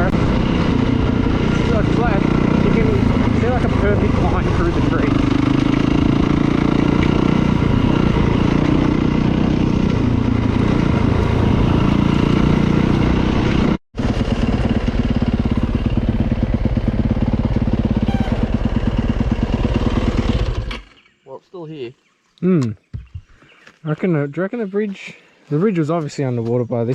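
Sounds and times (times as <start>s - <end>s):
dirt bike engine running: 0.0s - 20.9s.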